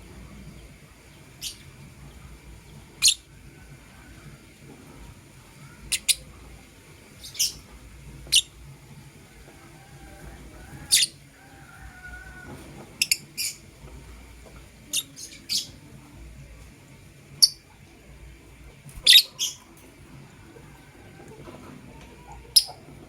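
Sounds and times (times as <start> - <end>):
lovebirds chirping: 5.6 - 6.3, 10.8 - 11.2, 19.0 - 19.7.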